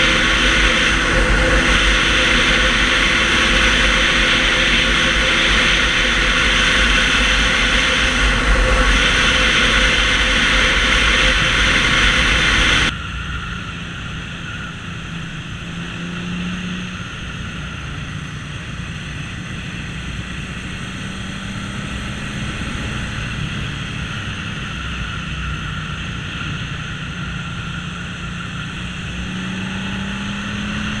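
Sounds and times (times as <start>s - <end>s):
heavy wind rush: 0.0s - 31.0s
motorcycle engine running: 0.0s - 31.0s.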